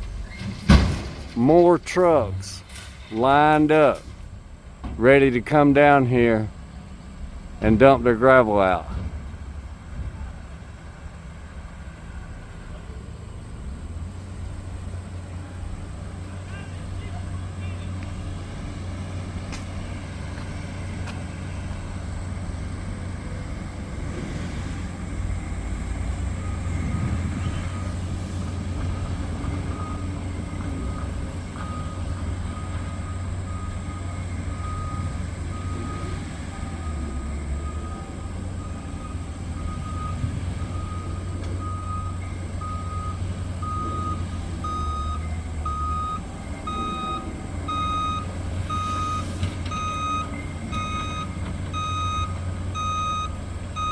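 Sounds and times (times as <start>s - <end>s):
truck engine rumbling: 0.0s - 53.9s
reversing alarm beeping: 28.9s - 53.9s.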